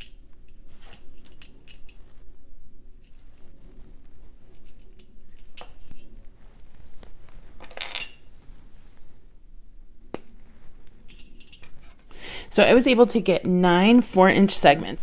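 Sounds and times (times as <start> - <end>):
metallic chain clinks: 11.1 - 12.0.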